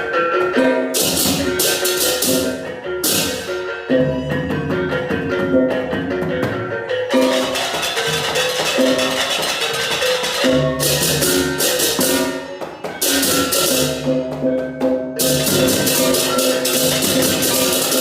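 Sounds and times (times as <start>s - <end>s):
drumming: 0.5s - 18.0s
gongs and gong-chimes melody: 6.7s - 18.0s
clashing hand cymbals: 15.2s - 18.0s.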